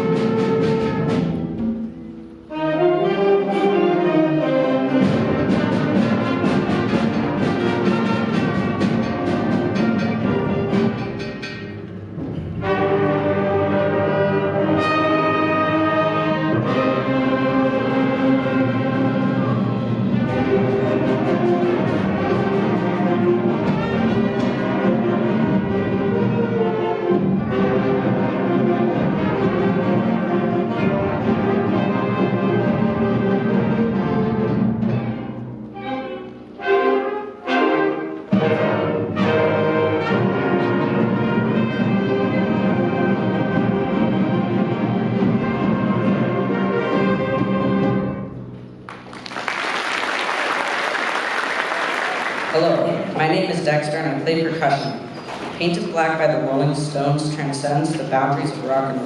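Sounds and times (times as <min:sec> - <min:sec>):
concert band playing: 0:00.0 - 0:59.0
steady drum beat: 0:05.0 - 0:11.5
brass sustained chords: 0:12.5 - 0:34.7.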